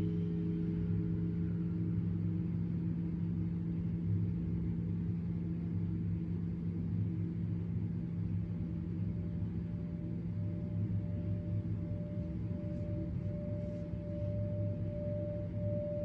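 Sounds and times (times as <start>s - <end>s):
singing bowl ringing: 11.9s - 16.0s.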